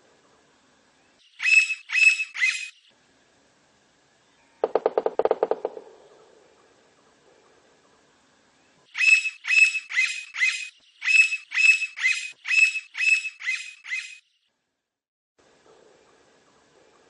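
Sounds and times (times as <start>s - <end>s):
woodpecker calling: 1.3s - 2.8s, 4.6s - 6.2s, 8.9s - 14.2s
woodpecker drumming: 4.6s - 6.2s.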